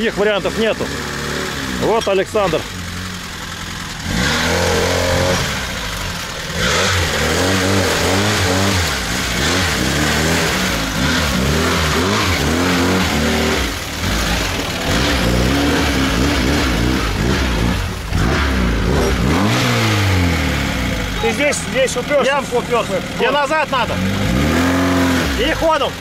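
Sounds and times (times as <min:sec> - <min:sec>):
car engine revving in mud: 0:00.0 - 0:26.0.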